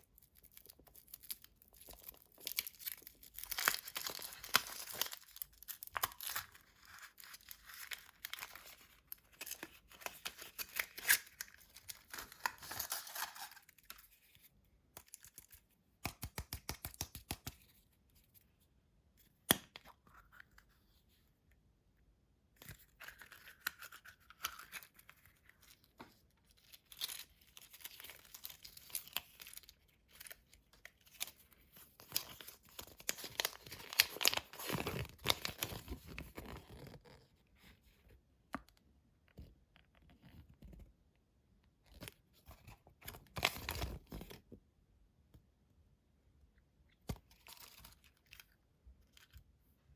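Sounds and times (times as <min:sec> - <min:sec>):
wrappers tearing and crinkling: 0:00.6 - 0:08.6.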